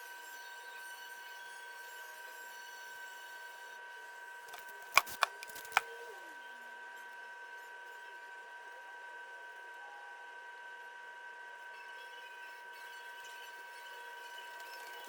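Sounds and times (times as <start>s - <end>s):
sharp clicks: 4.5s - 5.9s.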